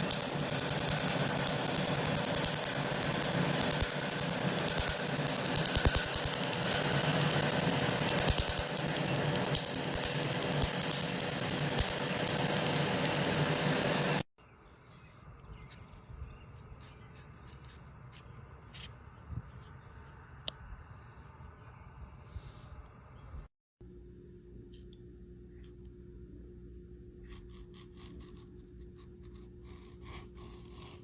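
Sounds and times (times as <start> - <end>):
loud mechanical rattle: 0.0 - 14.3.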